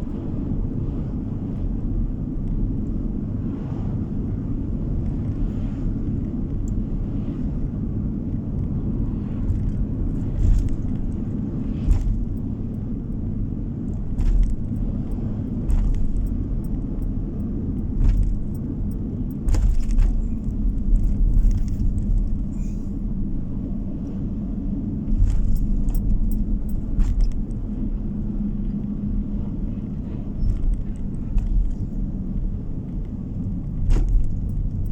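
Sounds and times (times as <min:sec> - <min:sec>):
tyre and engine rumble: 0:00.0 - 0:34.9
knocks and rattles over bumps: 0:09.4 - 0:13.2, 0:13.8 - 0:22.5, 0:25.1 - 0:27.6, 0:30.4 - 0:34.9.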